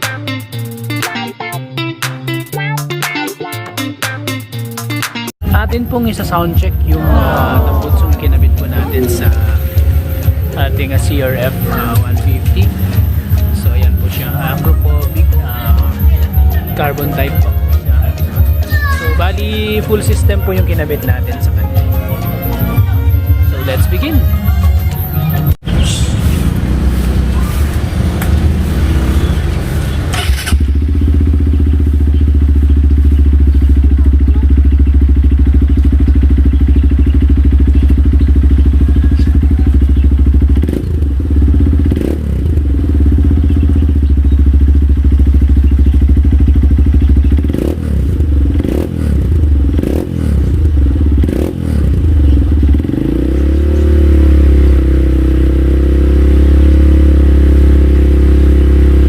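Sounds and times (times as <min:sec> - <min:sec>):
motorcycle engine idling: 0:05.4 - 0:59.0
engine revving: 0:06.0 - 0:18.6, 0:25.2 - 0:59.0.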